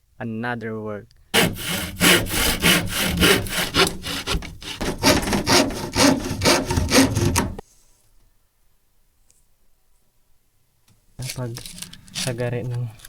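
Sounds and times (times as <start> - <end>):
hand saw cutting wood: 1.4 - 7.6.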